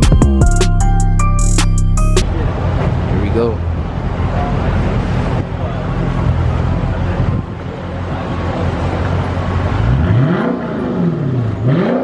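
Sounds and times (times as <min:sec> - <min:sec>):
car engine idling: 0:02.2 - 0:10.0.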